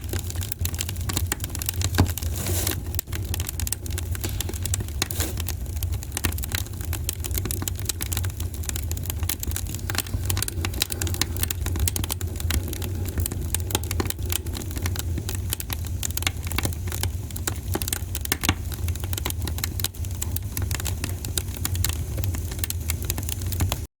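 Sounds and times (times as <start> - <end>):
wood fire crackling and popping: 0.0 - 23.9.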